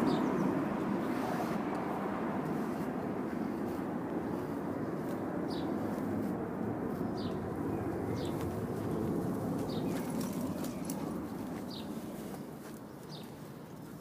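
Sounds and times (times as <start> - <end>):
steady rushing noise: 0.0 - 12.7
small bird chirping: 6.9 - 13.4.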